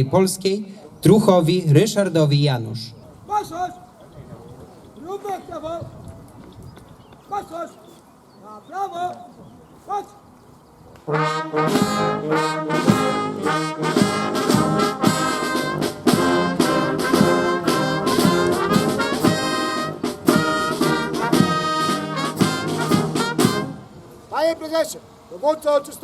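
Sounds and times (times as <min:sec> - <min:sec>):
brass band playing a march: 0:11.0 - 0:24.0.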